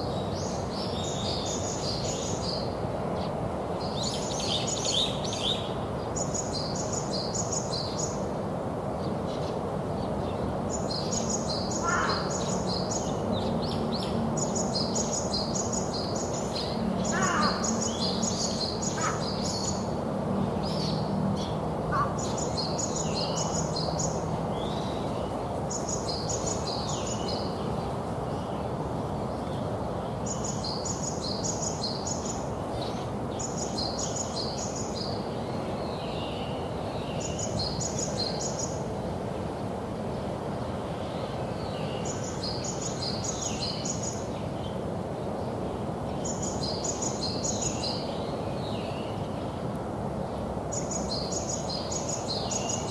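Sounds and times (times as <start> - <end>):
songbird singing: 0.0 - 8.4, 9.0 - 52.9.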